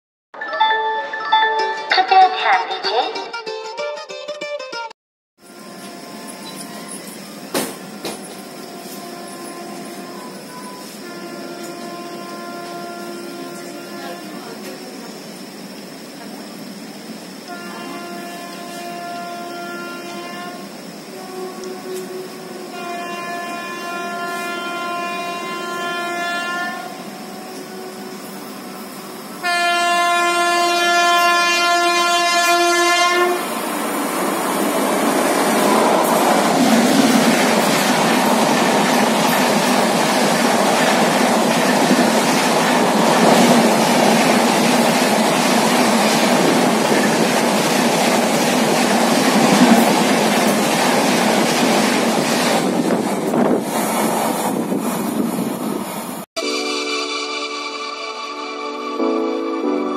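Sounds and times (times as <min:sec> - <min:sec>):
train coaches rushing past: 0:05.5 - 0:59.9
locomotive horn: 0:07.7 - 0:14.8, 0:17.5 - 0:28.8, 0:29.4 - 0:33.5
wheels clacking over rail joints: 0:35.6 - 0:55.1.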